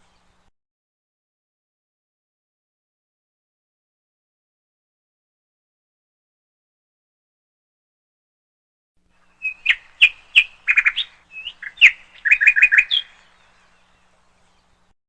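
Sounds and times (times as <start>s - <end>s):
bird chirping: 0.0s - 0.5s, 9.2s - 15.0s.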